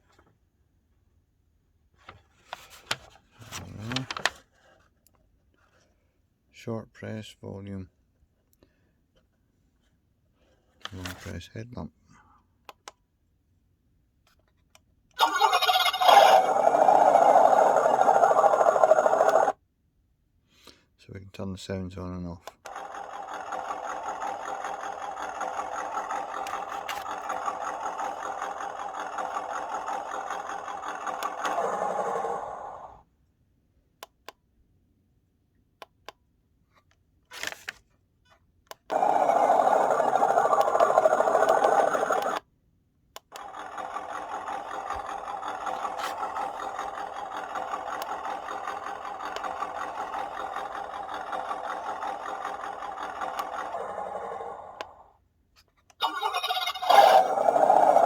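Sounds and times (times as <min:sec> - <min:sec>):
loud engine start-up sound: 0:15.2 - 0:19.6, 0:22.7 - 0:33.0, 0:38.9 - 0:42.4, 0:43.3 - 0:55.1, 0:56.0 - 0:58.0.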